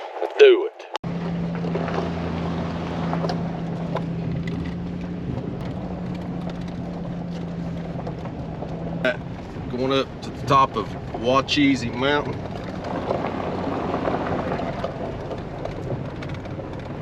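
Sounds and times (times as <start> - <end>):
tyre and road noise: 0.0 - 17.0
gravel ticks: 0.1 - 17.0
truck engine running: 1.0 - 17.0.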